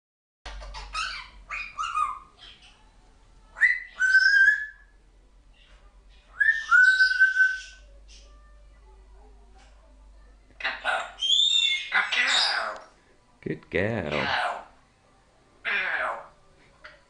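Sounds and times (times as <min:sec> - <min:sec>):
parrot chattering calls: 0:00.5 - 0:02.8, 0:03.6 - 0:04.9, 0:06.3 - 0:07.8, 0:10.6 - 0:12.9, 0:14.1 - 0:14.7, 0:15.6 - 0:16.3
parrot whistles: 0:03.6 - 0:04.9, 0:06.4 - 0:07.8.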